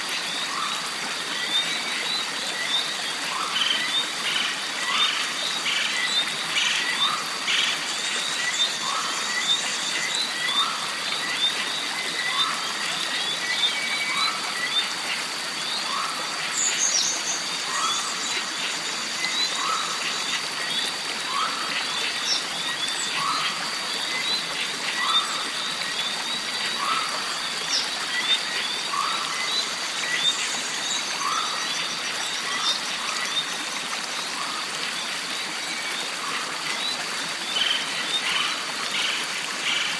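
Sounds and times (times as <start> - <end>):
insects droning: 0.0 - 39.9
running water: 0.0 - 39.9.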